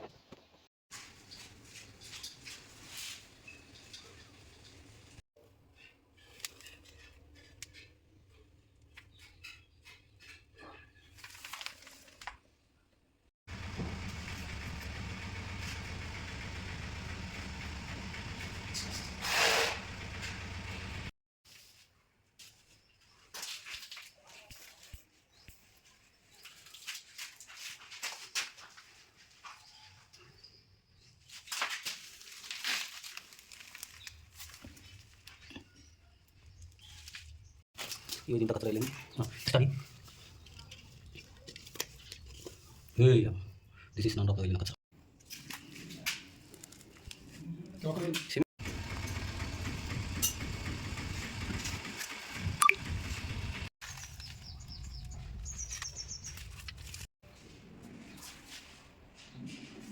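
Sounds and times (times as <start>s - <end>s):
rustling and scraping: 0.0s - 12.5s, 18.2s - 30.2s, 31.2s - 43.0s, 53.8s - 59.9s.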